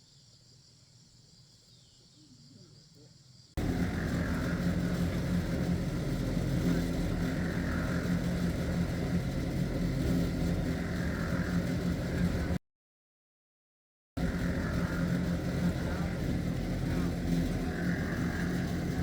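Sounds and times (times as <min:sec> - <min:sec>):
engine running: 0:03.6 - 0:12.6, 0:14.2 - 0:19.0.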